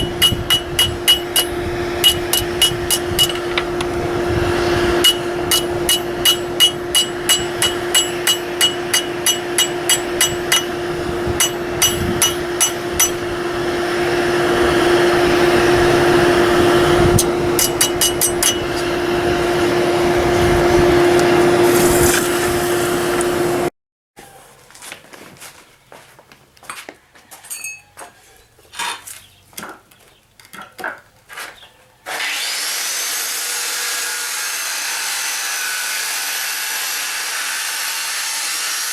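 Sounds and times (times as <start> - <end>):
hammer striking anvil: 0.0 - 3.8, 5.0 - 13.4, 17.2 - 18.9
steady hum: 0.0 - 21.6.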